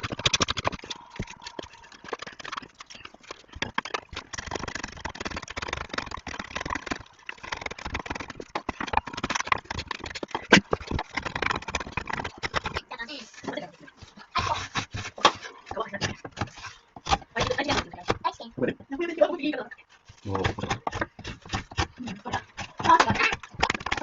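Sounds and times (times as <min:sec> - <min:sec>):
hard objects knocking together: 0:00.0 - 0:13.6, 0:20.1 - 0:24.0.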